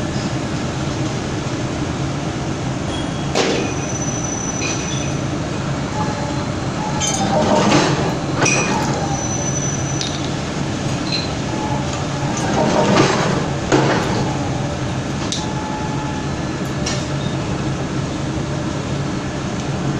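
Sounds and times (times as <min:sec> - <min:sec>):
metallic clanks: 0:06.9 - 0:09.2, 0:10.0 - 0:14.4.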